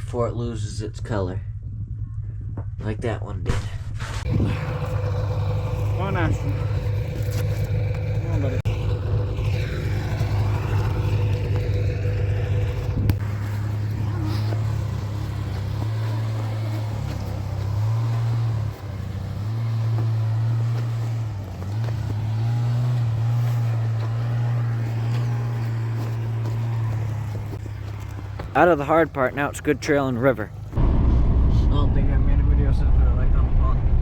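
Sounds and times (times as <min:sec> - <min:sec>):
small vehicle engine running: 0:04.2 - 0:30.8.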